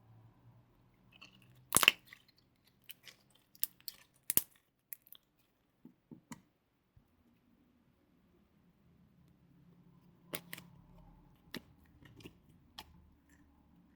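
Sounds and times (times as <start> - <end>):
slime popping and clicking: 1.7 - 2.2, 2.9 - 5.2.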